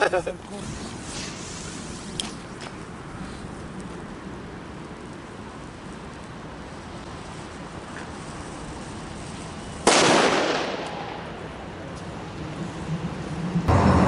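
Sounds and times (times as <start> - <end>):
low background noise: 0.0 - 13.9
firecracker bang with echo: 9.8 - 11.3.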